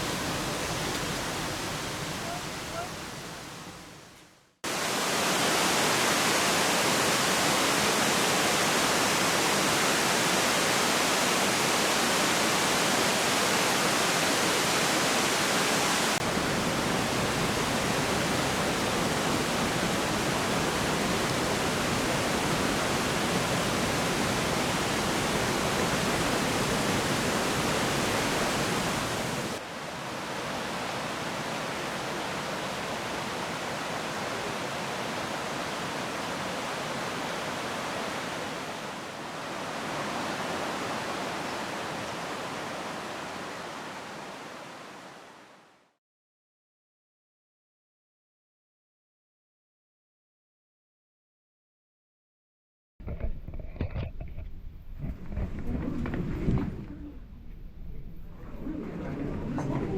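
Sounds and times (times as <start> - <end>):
waterfall rushing: 0.0 - 3.9, 4.7 - 45.5.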